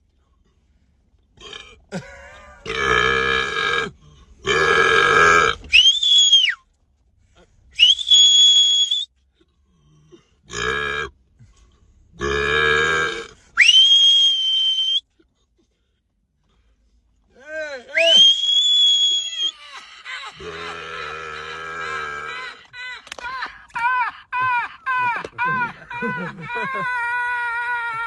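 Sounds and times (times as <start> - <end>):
high rising whistles: 18.0 - 19.5.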